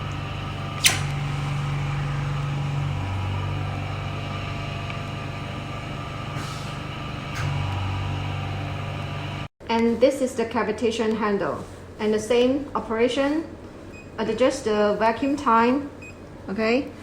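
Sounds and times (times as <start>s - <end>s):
suction pump humming: 0.0s - 9.5s.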